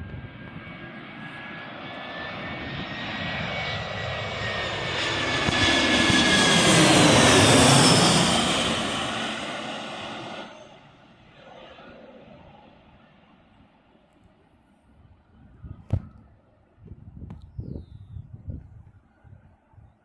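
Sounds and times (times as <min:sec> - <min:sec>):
jet airliner passing overhead: 0:00.0 - 0:14.0
jet engine whine: 0:00.0 - 0:14.0.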